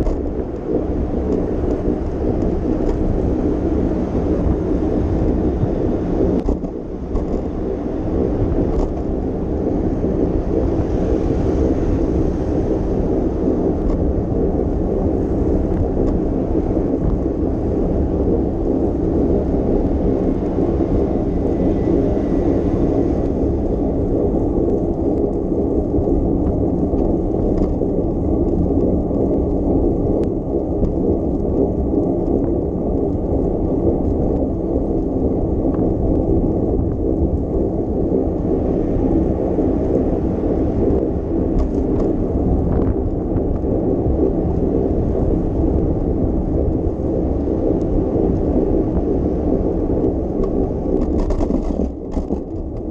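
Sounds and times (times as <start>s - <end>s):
road noise: 0.0s - 52.9s
wind buffeting microphone: 0.0s - 52.9s.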